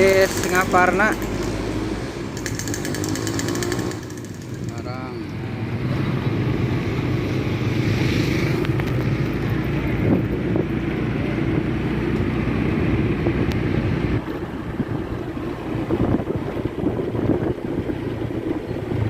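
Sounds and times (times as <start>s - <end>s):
diesel bus engine running: 0.0s - 19.0s
wind buffeting microphone: 5.6s - 19.0s.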